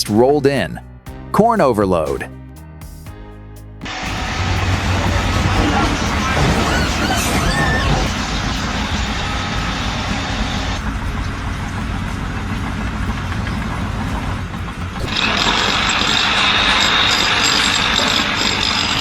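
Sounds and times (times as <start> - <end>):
loud hissing rushing noise: 3.9 - 19.0
truck engine rumbling: 3.9 - 19.0.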